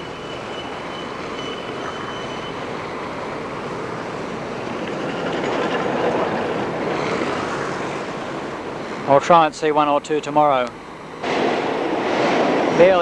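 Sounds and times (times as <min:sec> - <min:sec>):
street traffic noise: 0:00.0 - 0:13.0
vehicle passing close: 0:03.9 - 0:09.1, 0:11.2 - 0:13.0.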